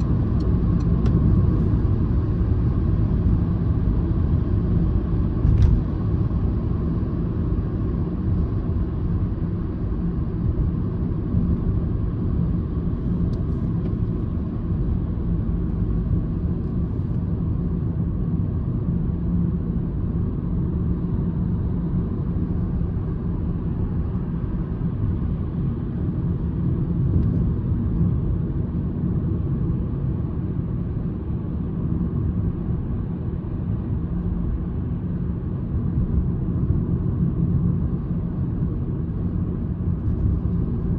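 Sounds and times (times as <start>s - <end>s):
car engine and tyres rumbling: 0.0s - 40.9s.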